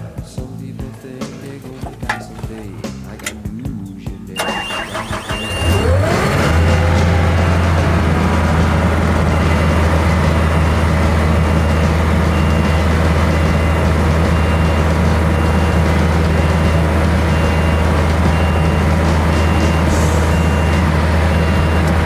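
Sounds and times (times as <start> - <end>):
warning beeper short beeps: 4.3 - 7.8, 8.6 - 22.0
machine engine running: 4.4 - 22.0.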